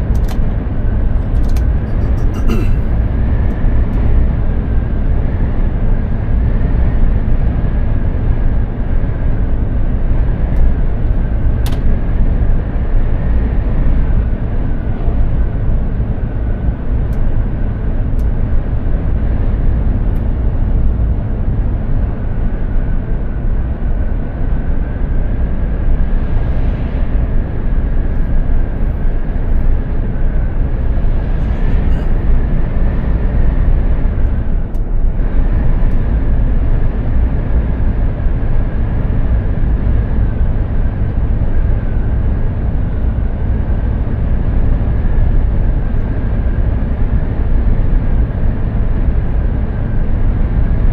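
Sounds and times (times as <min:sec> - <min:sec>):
truck engine and road rumble: 0:00.0 - 0:50.9
faint high whine: 0:30.5 - 0:32.4.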